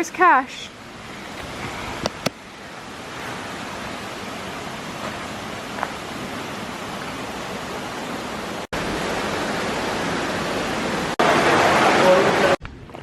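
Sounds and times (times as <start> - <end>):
steady outdoor rushing noise: 1.0 - 8.6.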